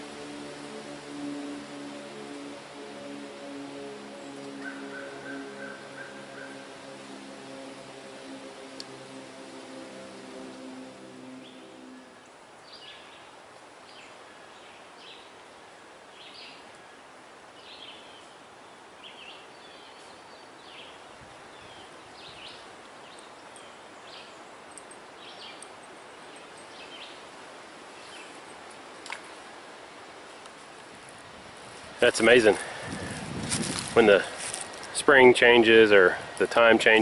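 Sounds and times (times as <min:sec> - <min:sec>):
low hum: 0:00.0 - 0:13.1
wind in leaves: 0:00.0 - 0:37.0
small birds chirping: 0:01.4 - 0:09.5, 0:17.6 - 0:29.3.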